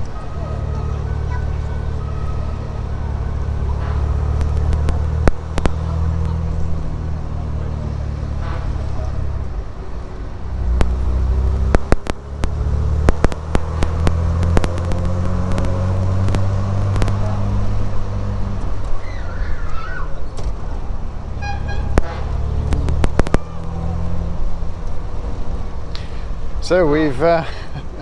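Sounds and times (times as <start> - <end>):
car engine running: 0.0 - 19.0, 20.3 - 27.4
sharp clicks and knocks: 3.7 - 6.4, 10.6 - 17.8, 21.8 - 24.2.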